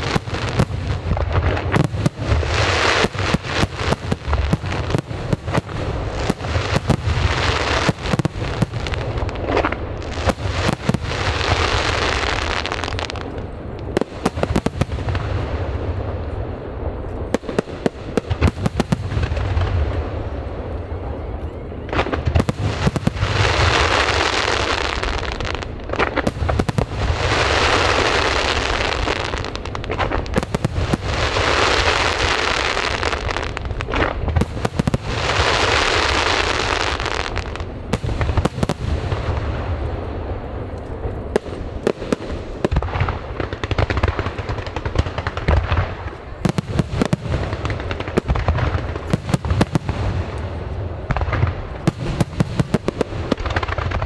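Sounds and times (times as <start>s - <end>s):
rushing firework swells: 0.0s - 20.3s
firework bangs: 0.0s - 54.0s.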